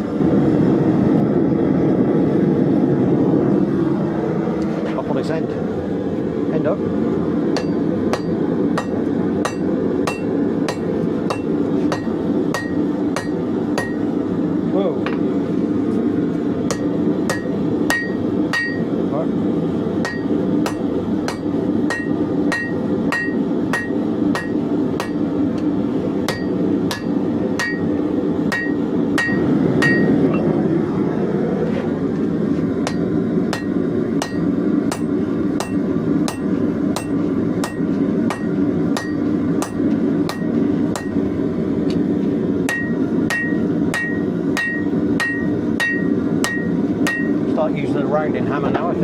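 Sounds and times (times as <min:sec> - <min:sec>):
hammer striking steel on anvil: 0:07.6 - 0:14.1, 0:16.7 - 0:18.9, 0:20.0 - 0:25.7, 0:26.3 - 0:30.5, 0:32.8 - 0:41.2, 0:42.7 - 0:47.4
low rushing noise: 0:20.4 - 0:38.2.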